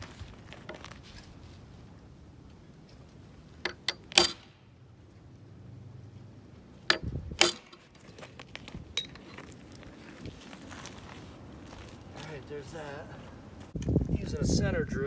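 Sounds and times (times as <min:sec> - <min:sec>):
metal hand tools clacking: 0:06.9 - 0:07.8.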